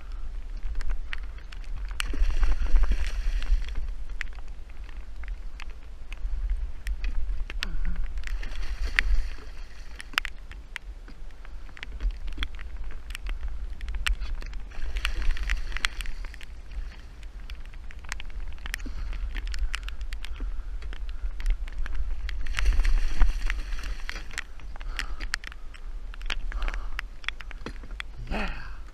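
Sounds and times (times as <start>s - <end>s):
wind noise on microphone: 0.0s - 28.9s
sharp taps and ticks: 23.3s - 28.2s.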